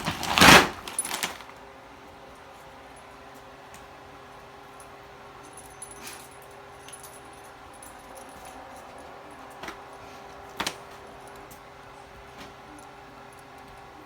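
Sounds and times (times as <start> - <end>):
dog collar tags jingling: 5.4 - 9.6.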